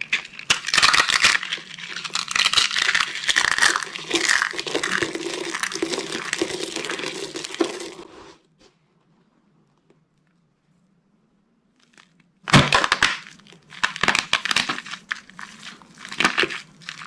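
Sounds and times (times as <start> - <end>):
dry soap crunching: 0.0 - 8.2, 11.8 - 17.0.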